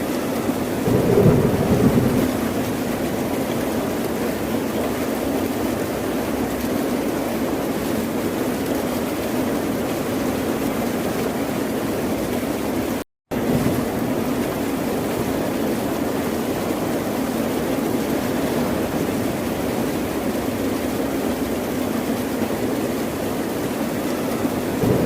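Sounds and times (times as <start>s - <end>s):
ocean surf: 0.8s - 3.6s, 24.6s - 25.0s.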